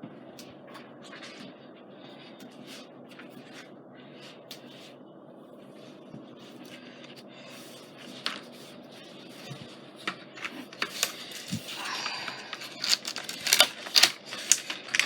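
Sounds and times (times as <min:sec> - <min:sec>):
plastic packaging rustling: 0:09.2 - 0:15.0.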